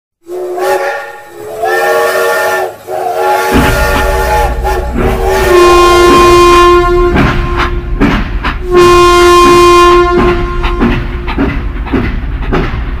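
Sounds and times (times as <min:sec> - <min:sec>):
steam train whistle blasts: 0:00.2 - 0:08.0, 0:08.6 - 0:11.1
low rumble of train running: 0:00.2 - 0:13.0
horn note held: 0:00.6 - 0:08.0.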